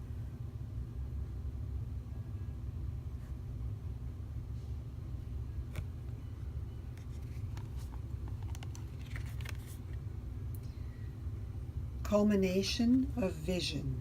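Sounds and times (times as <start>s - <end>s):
steady low hum: 0.0s - 14.0s
cards clicking and sliding: 6.9s - 10.0s.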